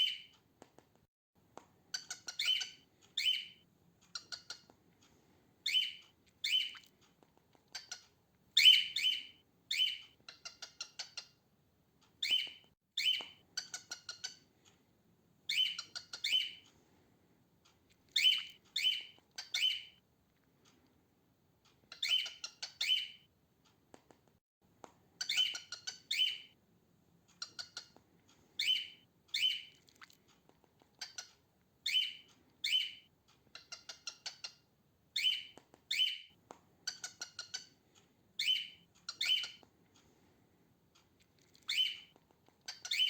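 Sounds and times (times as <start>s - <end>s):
cockatiel chirping: 0.0s - 0.3s, 1.9s - 4.7s, 5.6s - 6.9s, 7.7s - 11.4s, 12.2s - 14.5s, 15.5s - 16.6s, 18.1s - 20.0s, 21.8s - 23.3s, 25.2s - 26.6s, 27.4s - 28.0s, 28.6s - 29.8s, 30.9s - 37.8s, 38.4s - 39.6s, 41.5s - 43.0s.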